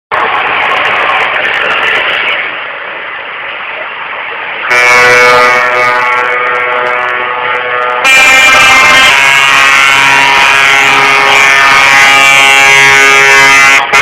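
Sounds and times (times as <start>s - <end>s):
traffic and engines: 0.1s - 14.0s
truck air horn: 4.6s - 14.0s.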